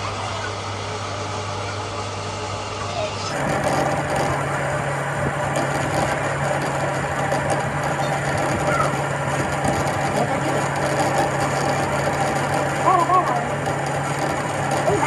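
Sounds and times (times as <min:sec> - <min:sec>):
metal lathe running: 0:00.0 - 0:15.0.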